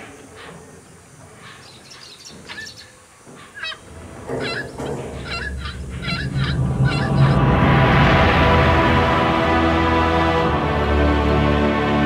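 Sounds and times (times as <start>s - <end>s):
birds squawking: 1.4s - 7.6s
low rumble: 3.8s - 11.1s.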